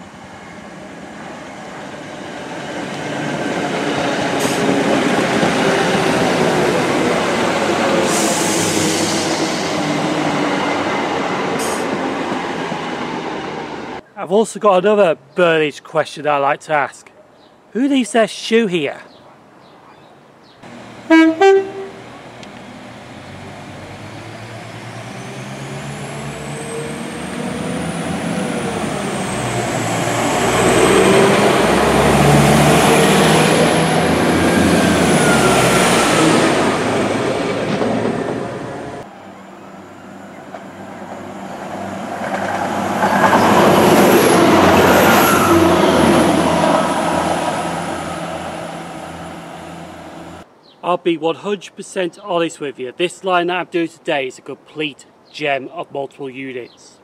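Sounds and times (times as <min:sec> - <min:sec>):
high train whine: 0:00.0 - 0:14.0, 0:20.6 - 0:50.5
train passing: 0:00.0 - 0:14.0, 0:20.6 - 0:50.5
train horn toot: 0:21.1 - 0:22.0.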